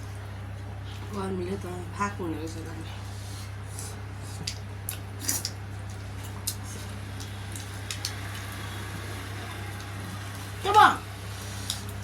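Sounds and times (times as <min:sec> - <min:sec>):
steady low hum: 0:00.0 - 0:12.0
wet chewing and mouth noises: 0:03.7 - 0:08.4.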